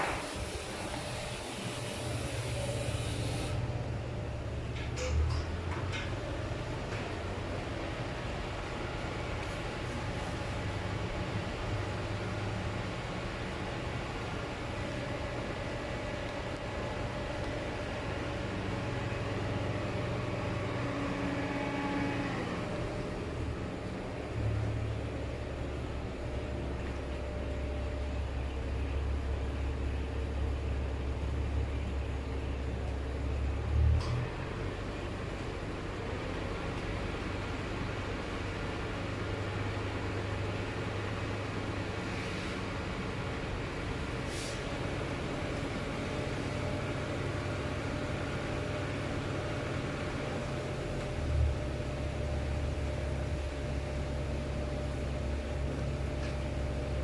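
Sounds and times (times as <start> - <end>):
car wash machine whooshing: 0.0 - 3.6
even hiss: 0.0 - 3.6
low mechanical rumble: 0.0 - 57.0.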